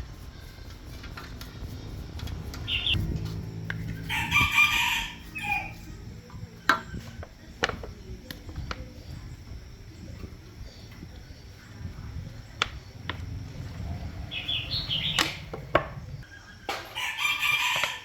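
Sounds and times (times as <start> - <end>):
rooster crowing: 2.6 - 6.8, 16.3 - 18.0.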